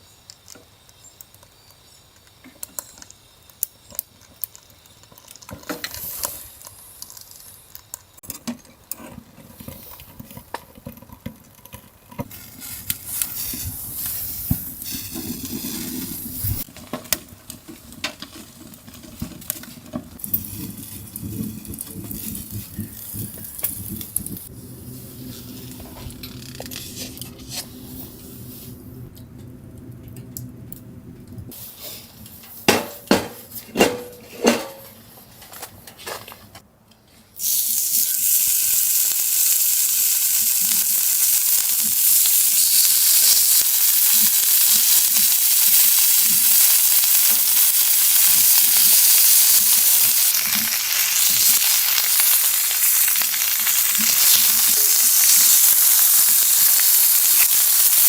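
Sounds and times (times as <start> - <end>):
food sizzling in a pan: 12.3 - 16.7, 19.2 - 29.0, 37.4 - 58.0.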